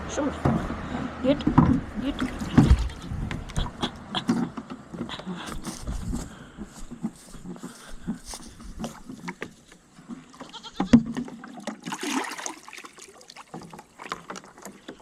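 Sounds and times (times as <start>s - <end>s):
goat bleating: 2.6s - 3.2s, 10.3s - 11.0s.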